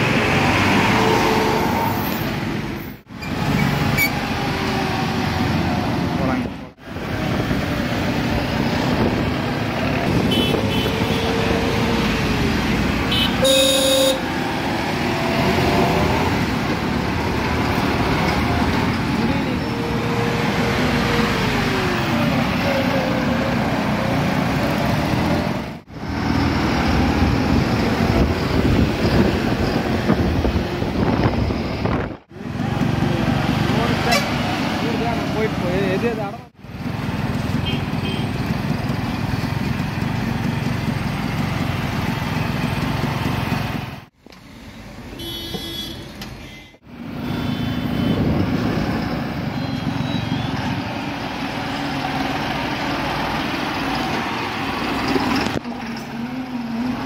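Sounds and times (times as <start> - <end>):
road noise: 0.0 - 57.0
vehicle horn toot: 10.2 - 11.3, 13.1 - 14.2, 37.6 - 38.3, 45.2 - 48.3, 49.6 - 50.6.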